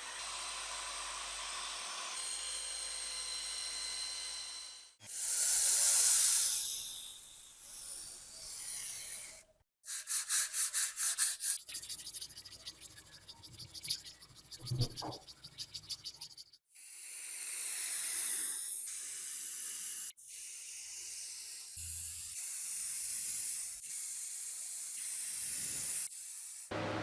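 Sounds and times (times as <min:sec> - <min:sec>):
rotary power tool whirring: 0:00.0 - 0:09.5.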